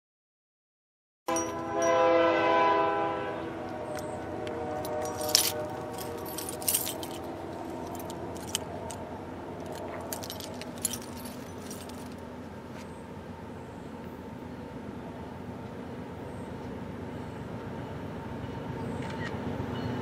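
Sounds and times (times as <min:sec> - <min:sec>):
locomotive horn: 0:01.3 - 0:08.5
distant freight train rumble: 0:01.3 - 0:20.0
light metallic clicks and jingles: 0:04.8 - 0:12.3.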